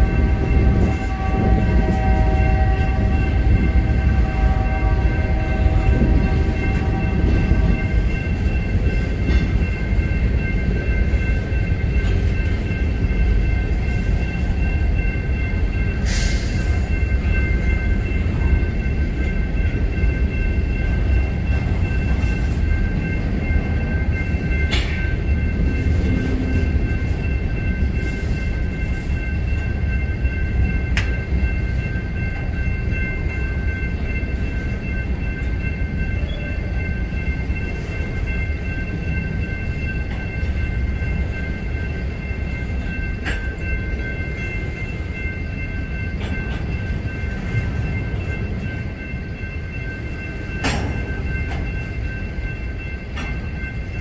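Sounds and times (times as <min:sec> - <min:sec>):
locomotive horn: 0:00.0 - 0:07.8
high-pitched ringing: 0:00.0 - 0:54.0
railcars rumbling on rails: 0:00.0 - 0:54.0.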